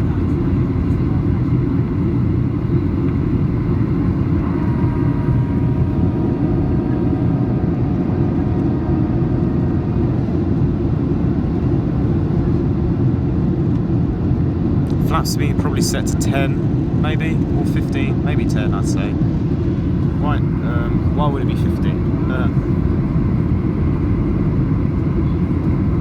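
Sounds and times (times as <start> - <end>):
faint whining tones: 0.0 - 8.6
airplane cabin engine rumble: 0.0 - 26.0.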